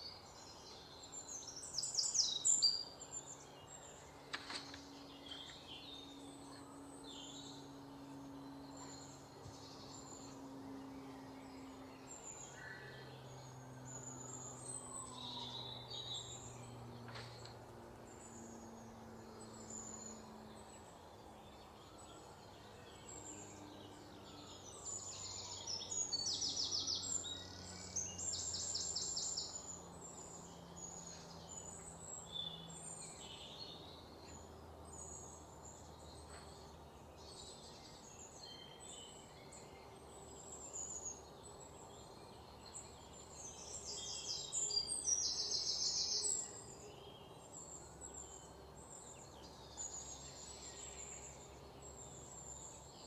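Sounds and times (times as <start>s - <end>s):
birds chirping and trilling: 0.0s - 53.0s
faint low hum: 0.0s - 53.0s.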